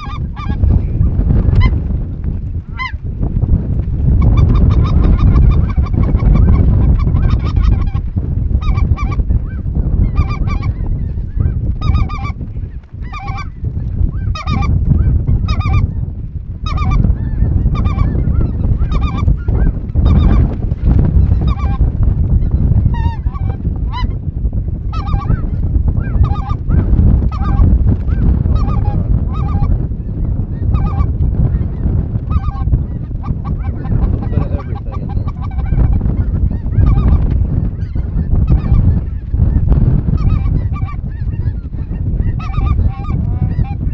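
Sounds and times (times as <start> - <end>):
geese honking: 0.0 - 0.9, 2.7 - 3.0, 4.2 - 12.4, 13.0 - 13.6, 14.2 - 15.9, 16.6 - 20.5, 21.2 - 21.8, 24.9 - 30.2, 30.8 - 37.2, 40.2 - 43.9
heavy low rumble: 0.0 - 43.9.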